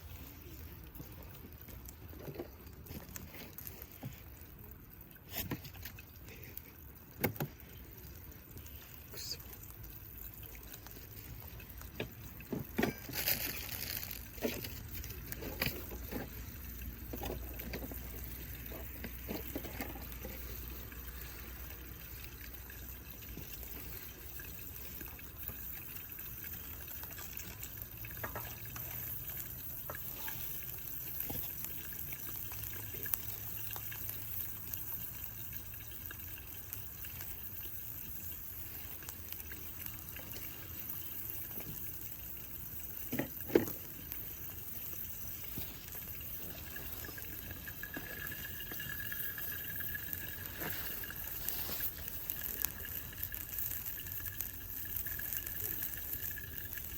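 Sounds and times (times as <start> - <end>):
fire crackling and knocks: 0.8 - 4.4, 10.4 - 21.4, 42.9 - 56.9
food sizzling in a skillet: 7.5 - 56.9.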